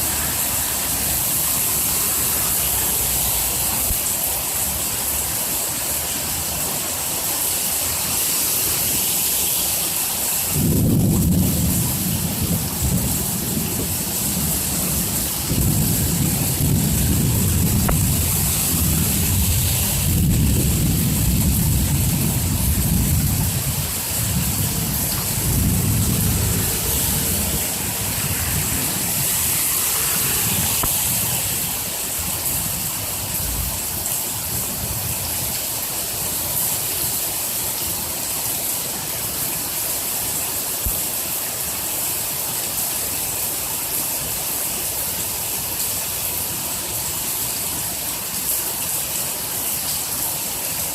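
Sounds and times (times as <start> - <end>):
heavy rain falling: 0.0 - 50.9
thunder rumbling: 10.5 - 31.8.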